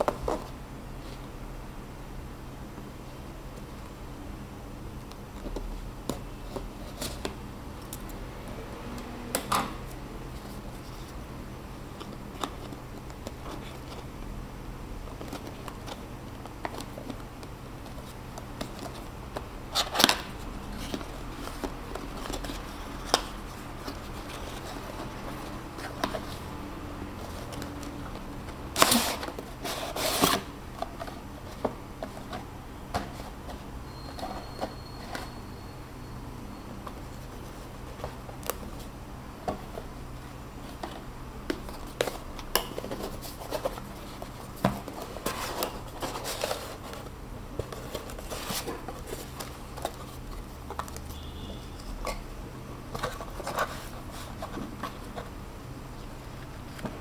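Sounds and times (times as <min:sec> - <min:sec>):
packaging clicks and rustles: 0:15.0 - 0:35.4, 0:36.8 - 0:55.4.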